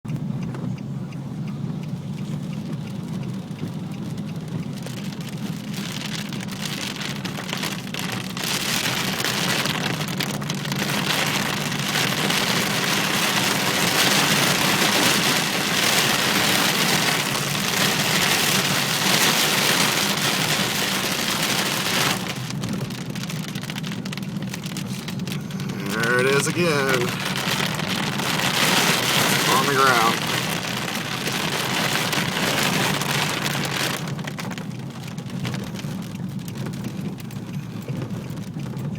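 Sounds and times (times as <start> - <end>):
heavy rain pouring: 4.8 - 38.9.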